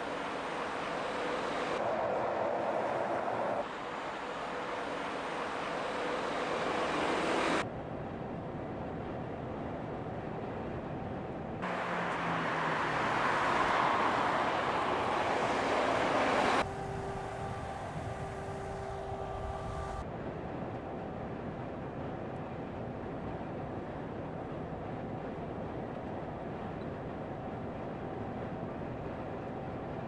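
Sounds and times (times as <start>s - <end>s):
truck passing rush: 0.0s - 7.6s, 11.6s - 20.0s
low road rumble: 0.0s - 30.0s
steady whining tones: 13.2s - 20.1s.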